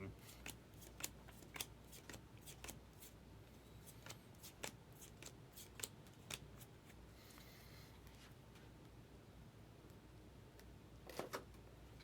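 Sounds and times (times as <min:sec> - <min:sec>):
cards flicking by hand: 0:00.3 - 0:03.2, 0:03.9 - 0:06.7.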